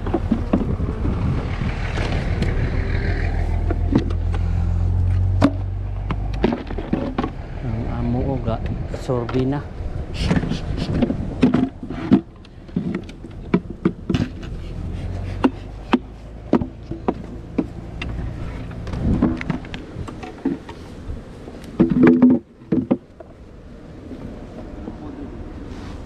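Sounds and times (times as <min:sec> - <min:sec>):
wooden equipment knocking and clicking: 0:00.0 - 0:00.8, 0:05.2 - 0:07.4, 0:10.3 - 0:14.6, 0:15.4 - 0:20.8, 0:21.8 - 0:23.3.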